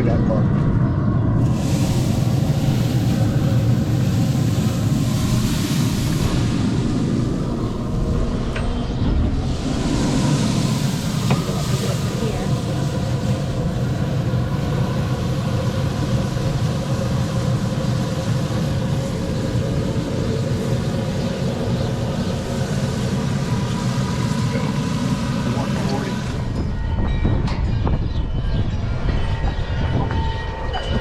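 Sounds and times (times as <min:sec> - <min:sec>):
constant hum: 0:00.0 - 0:31.0
low mechanical rumble: 0:00.0 - 0:31.0
hiss: 0:01.4 - 0:08.5, 0:09.4 - 0:26.4.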